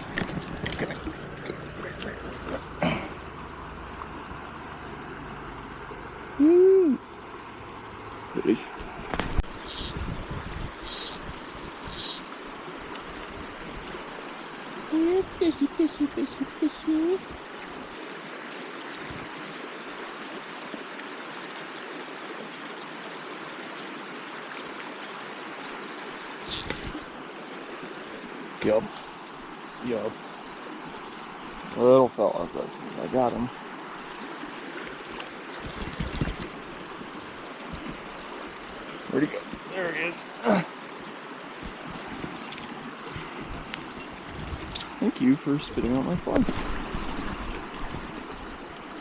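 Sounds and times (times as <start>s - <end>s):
person clearing throat: 2.8s - 3.2s
mountain brook rushing: 7.0s - 49.0s.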